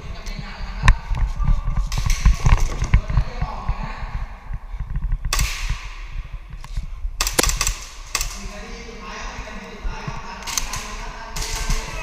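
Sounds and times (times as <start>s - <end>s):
airsoft pistol shot: 7.2s - 8.2s.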